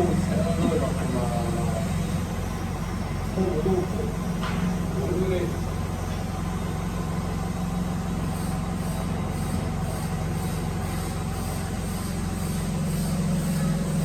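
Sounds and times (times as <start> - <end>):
workshop machinery humming: 0.0 - 14.0.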